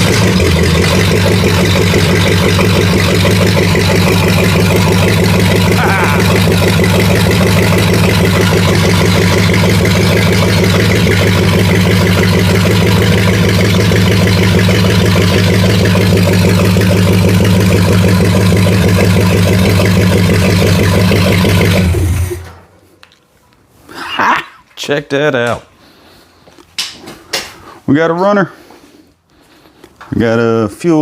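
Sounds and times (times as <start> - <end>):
car engine running without exhaust: 0.0 - 22.6.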